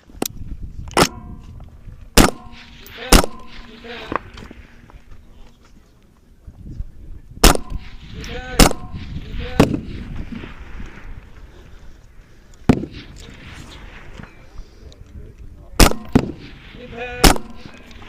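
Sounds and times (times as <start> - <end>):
rifle shots: 1.0 - 1.2, 2.2 - 4.2, 7.4 - 10.0, 12.7 - 13.9, 15.8 - 17.8
steel target ringing: 2.2 - 4.1.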